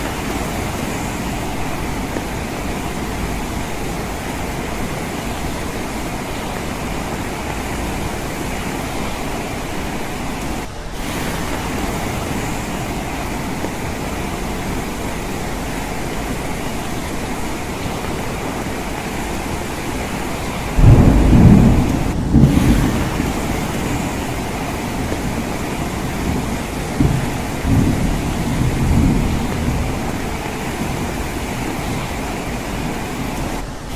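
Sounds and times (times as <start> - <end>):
rain pattering on a window: 0.0 - 33.9
low rumble of thunder: 20.7 - 32.2.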